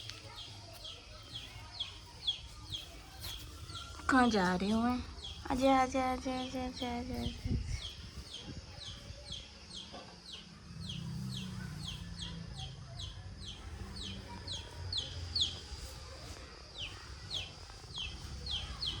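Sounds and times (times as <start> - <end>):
bird chirping: 0.0 - 19.0.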